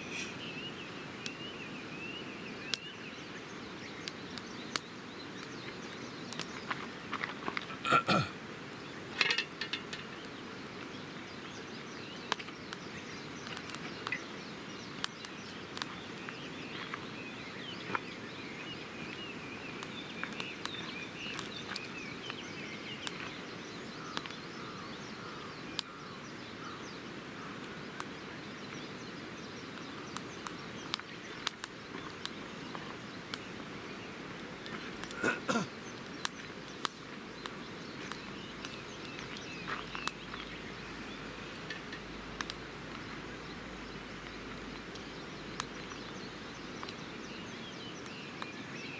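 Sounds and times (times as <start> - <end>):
background hiss: 0.0 - 48.9
birds chirping: 0.0 - 48.9
campfire crackling: 0.0 - 48.9.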